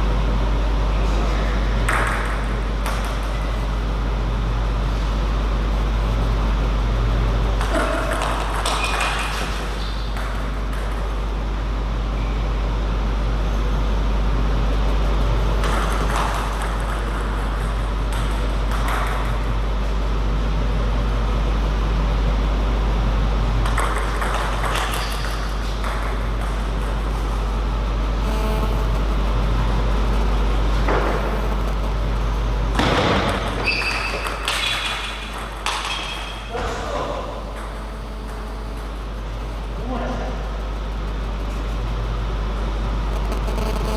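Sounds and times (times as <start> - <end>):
steady low hum: 0.0 - 43.9
table tennis ball striking: 1.8 - 3.5, 7.6 - 11.2, 15.6 - 19.6, 23.6 - 27.2, 32.7 - 39.2.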